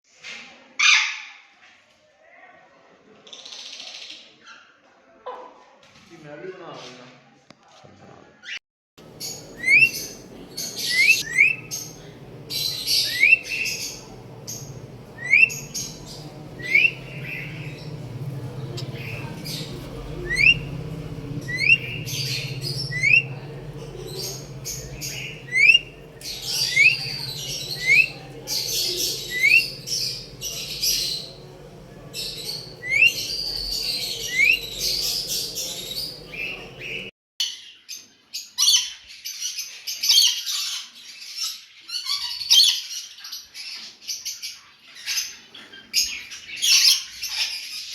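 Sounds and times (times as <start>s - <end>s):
harsh bird chattering: 9.0s - 37.1s
lovebirds chirping: 9.0s - 37.1s
low hum: 9.0s - 37.1s.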